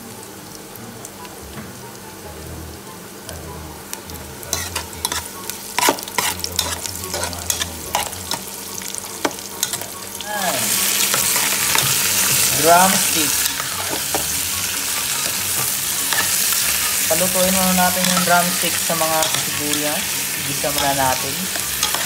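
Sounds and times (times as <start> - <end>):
onion sizzling in oil: 0.0 - 22.0
metal spoon scraping a pot: 4.5 - 8.4, 20.7 - 22.0.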